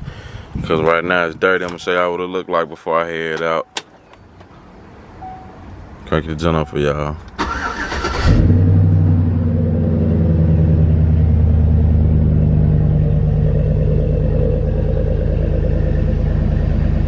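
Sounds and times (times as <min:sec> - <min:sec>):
pickup engine idling: 0:08.5 - 0:17.0.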